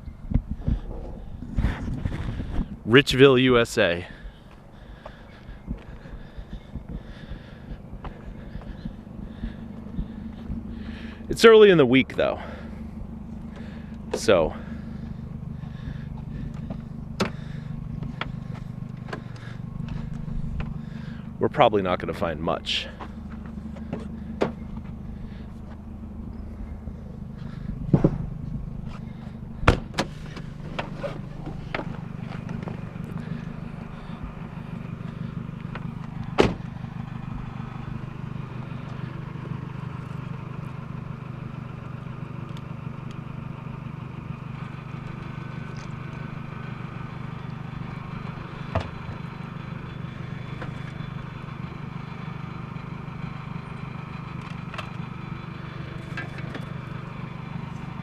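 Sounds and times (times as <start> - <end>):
car engine running: 0.0 - 58.0
sharp knocks: 27.9 - 28.3.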